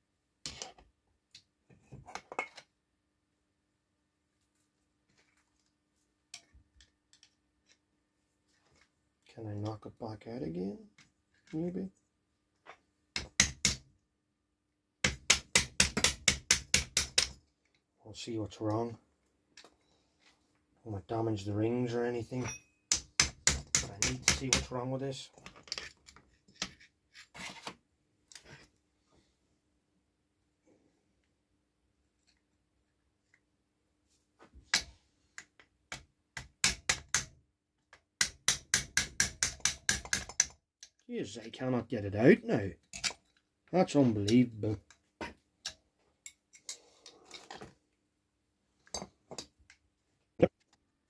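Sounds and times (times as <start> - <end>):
hammer tapping on metal pin: 38.2 - 40.6.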